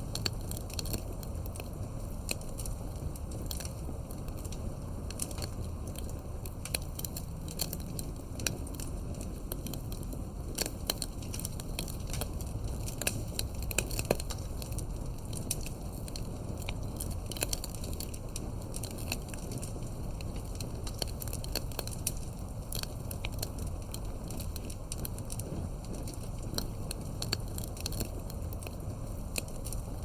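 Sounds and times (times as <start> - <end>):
campfire crackling and popping: 0.0 - 30.0
low rumble of flames: 0.0 - 30.0.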